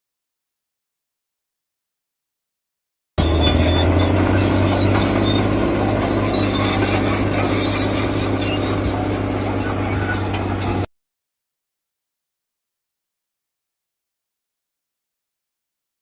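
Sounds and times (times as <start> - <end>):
electric motors whining: 3.2 - 10.9.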